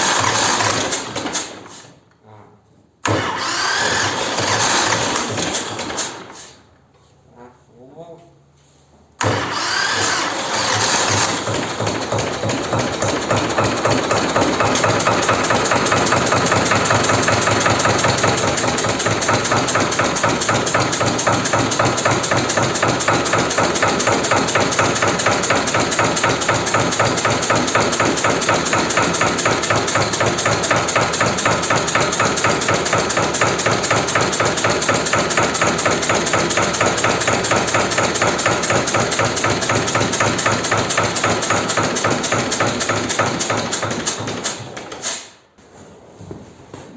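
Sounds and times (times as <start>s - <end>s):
diesel engine idling with clatter: 9.3s - 44.8s.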